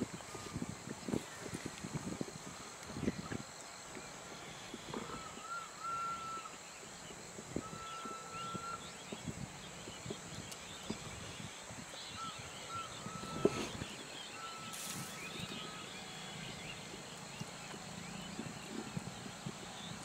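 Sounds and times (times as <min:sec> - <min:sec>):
faint bird chirps: 0:03.0 - 0:20.0
bird whistling long note: 0:05.0 - 0:06.5, 0:07.6 - 0:09.0, 0:12.1 - 0:16.6.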